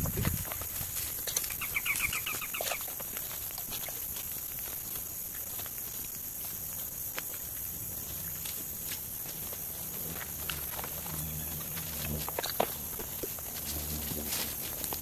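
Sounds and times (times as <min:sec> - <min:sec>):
bird chattering call: 0:01.6 - 0:02.8.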